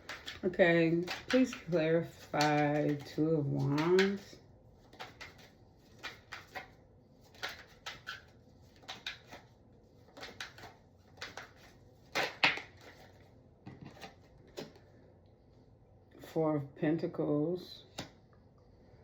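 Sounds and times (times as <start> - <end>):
cards being shuffled: 0.0 - 14.9.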